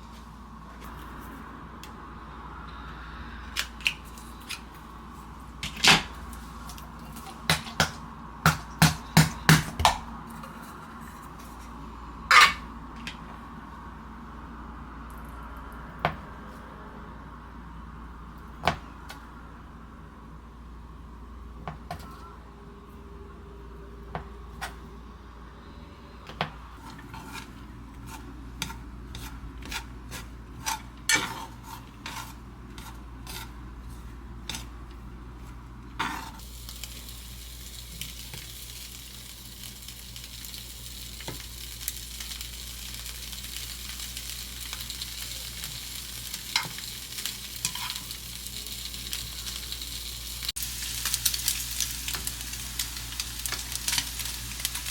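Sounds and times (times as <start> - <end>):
food sizzling in hot oil: 36.0 - 54.9.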